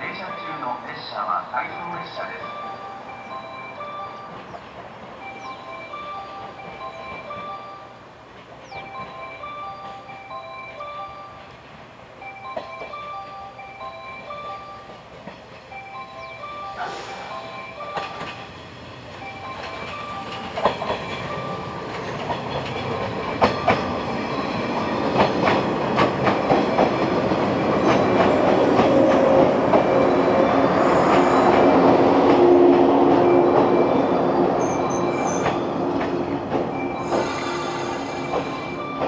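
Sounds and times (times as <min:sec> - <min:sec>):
electric train passing: 0:00.0 - 0:39.0
wheels clicking over rail joints: 0:08.2 - 0:13.1, 0:13.9 - 0:16.2, 0:17.8 - 0:30.3, 0:34.6 - 0:37.3.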